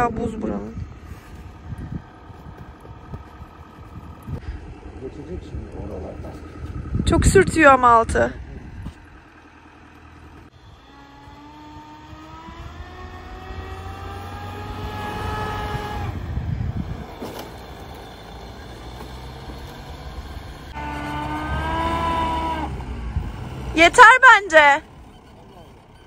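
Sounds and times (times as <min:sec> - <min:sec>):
vehicle engine revving: 0:00.0 - 0:26.0
underside dragging over ice: 0:00.9 - 0:04.4.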